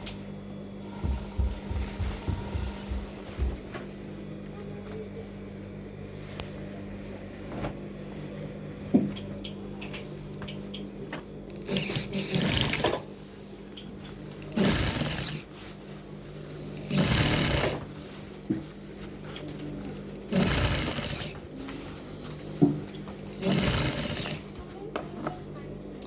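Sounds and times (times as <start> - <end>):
steady low hum: 0.0 - 26.0
sewing machine stitching: 11.6 - 13.0, 14.4 - 15.5, 16.7 - 17.9, 20.2 - 21.5, 23.2 - 24.6.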